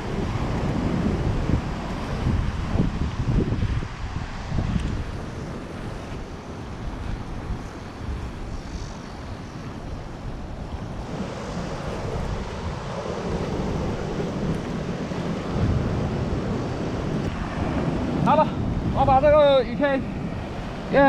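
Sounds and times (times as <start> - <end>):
waves washing on shore: 0.0 - 21.0
wind buffeting microphone: 0.0 - 21.0.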